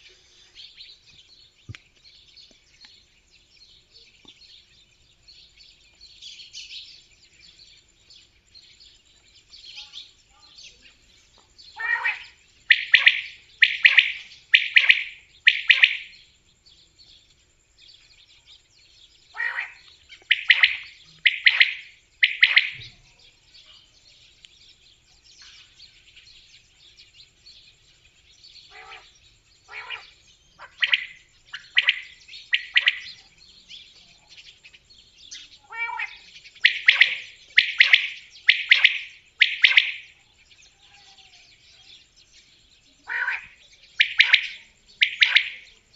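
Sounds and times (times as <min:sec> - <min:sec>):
quail singing sharp phrases: 0:11.6 - 0:16.3, 0:19.3 - 0:23.9, 0:28.6 - 0:40.7, 0:43.0 - 0:45.9.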